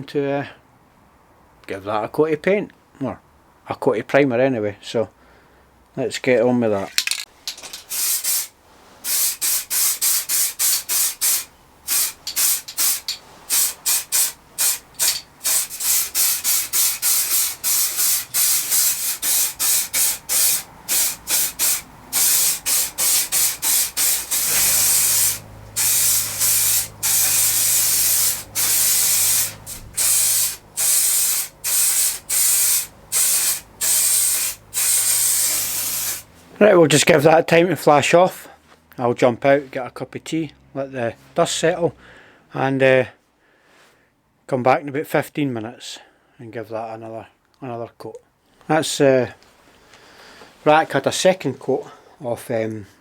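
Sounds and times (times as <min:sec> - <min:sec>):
aerosol spray can hissing: 0:07.9 - 0:36.3.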